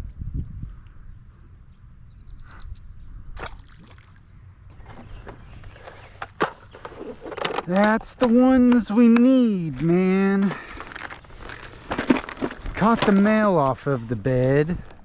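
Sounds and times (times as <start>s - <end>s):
wind rumbling on microphone: 0.0s - 3.6s
water sloshing: 3.4s - 5.2s.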